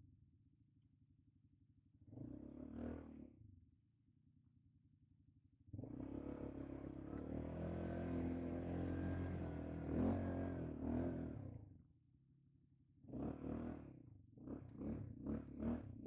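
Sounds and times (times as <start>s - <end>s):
quad bike engine revving: 2.2s - 3.2s, 5.8s - 11.5s, 13.1s - 16.0s.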